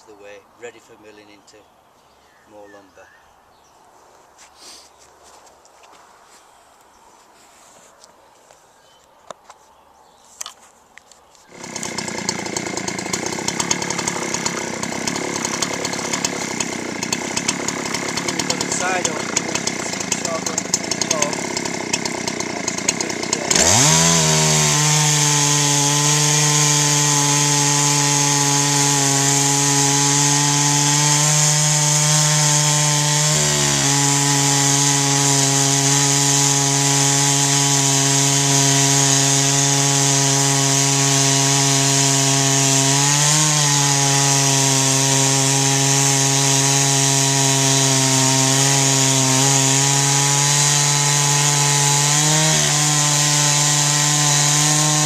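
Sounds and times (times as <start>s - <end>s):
chainsaw cutting log: 11.4s - 55.0s.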